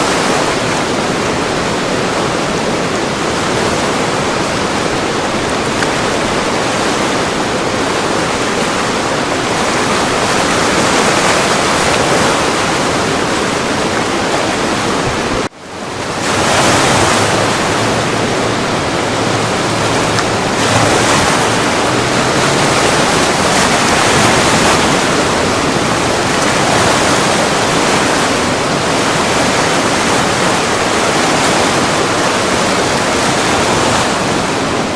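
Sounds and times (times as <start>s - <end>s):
river rapids rushing: 0.0s - 34.9s.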